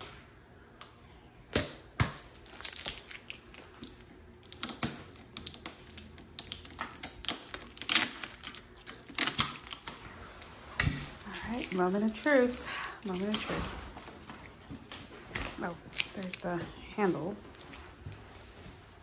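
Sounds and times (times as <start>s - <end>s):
packaging crinkling and snapping: 2.0s - 16.7s.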